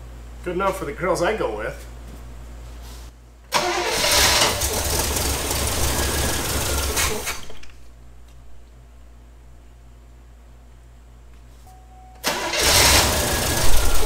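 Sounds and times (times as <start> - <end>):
car engine starting and running: 3.5 - 7.5, 12.2 - 14.0.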